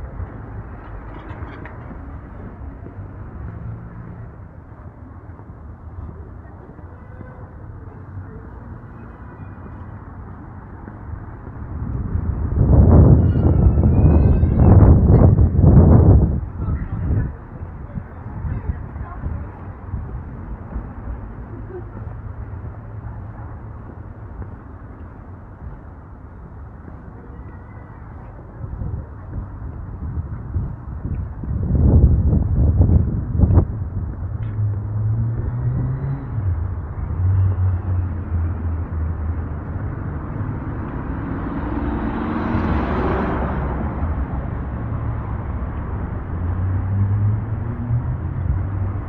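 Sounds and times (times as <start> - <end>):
wind buffeting microphone: 0.0 - 49.0
car passing by: 34.5 - 49.0.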